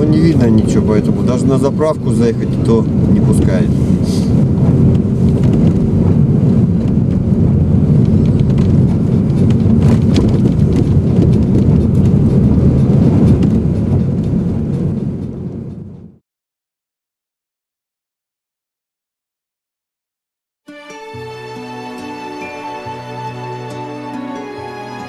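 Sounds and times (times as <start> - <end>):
car driving heard from inside: 0.0 - 16.2.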